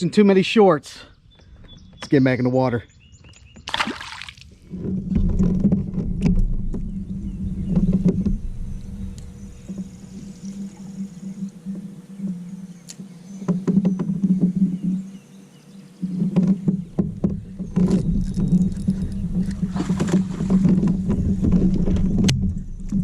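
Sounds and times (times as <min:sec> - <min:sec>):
water splash: 0:03.7 - 0:04.6.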